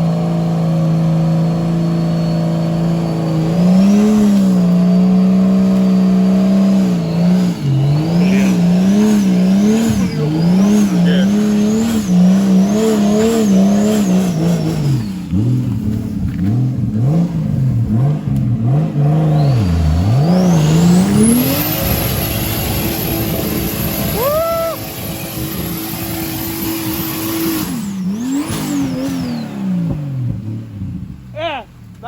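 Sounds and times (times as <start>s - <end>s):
engine revving hard in mud: 0.0s - 31.1s.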